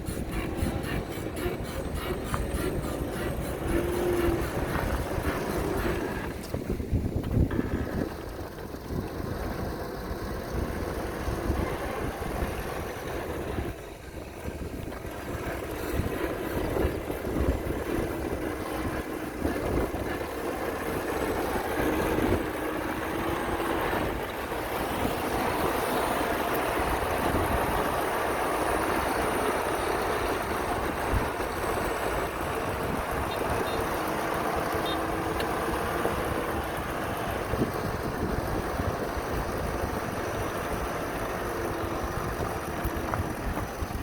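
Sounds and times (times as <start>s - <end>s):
heavy diesel engine running: 0.0s - 44.0s.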